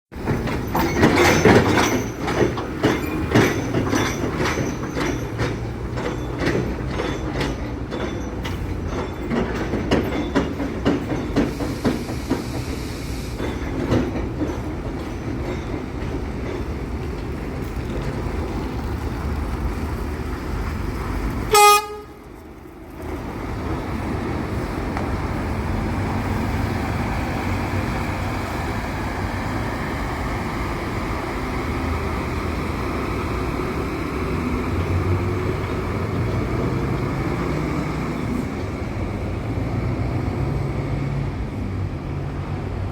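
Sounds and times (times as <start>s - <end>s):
sharp clicks and knocks: 0.2s - 12.7s
short horn toot: 21.5s - 22.2s.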